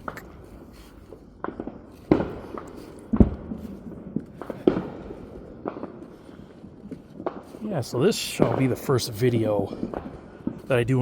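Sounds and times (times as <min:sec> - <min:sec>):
faint firecracker pops: 0:00.0 - 0:00.5, 0:01.4 - 0:07.7, 0:09.7 - 0:10.7
firework bangs: 0:00.0 - 0:11.0.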